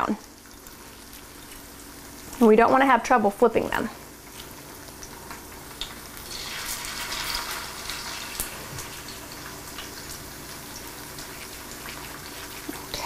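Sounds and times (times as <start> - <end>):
potato cakes sizzling in oil: 0.0 - 13.0.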